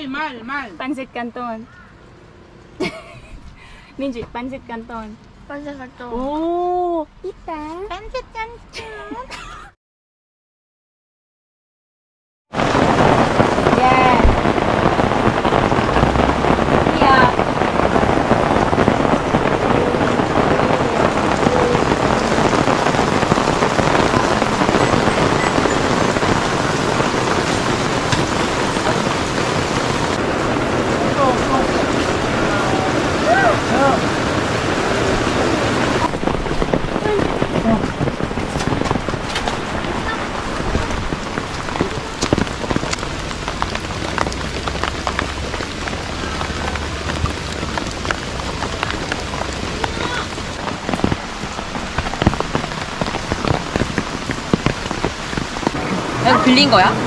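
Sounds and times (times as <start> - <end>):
rain on a tarp and trees: 0.0 - 9.2, 12.5 - 57.0.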